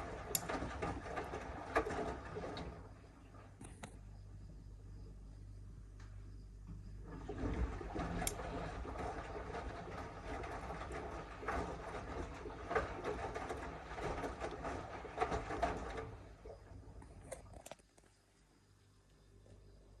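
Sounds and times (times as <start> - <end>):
washing machine clicks: 0.0 - 1.2, 8.0 - 8.5
washing machine drum tumbling: 0.0 - 3.5, 6.9 - 17.0.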